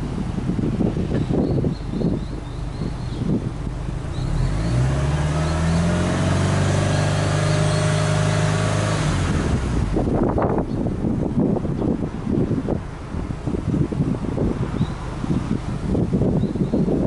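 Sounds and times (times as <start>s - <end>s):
car engine revving: 2.7s - 16.4s.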